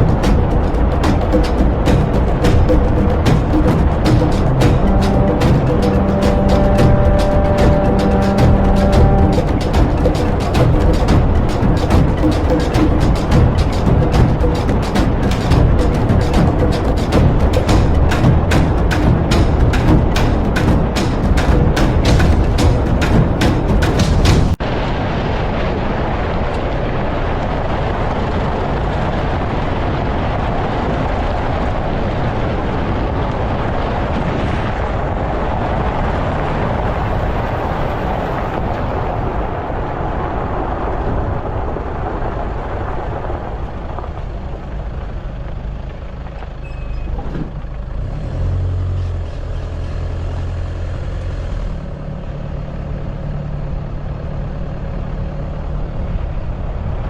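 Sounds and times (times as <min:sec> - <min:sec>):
vehicle engine: 0:00.0 - 0:24.6, 0:42.2 - 0:57.0
road noise: 0:00.0 - 0:57.0.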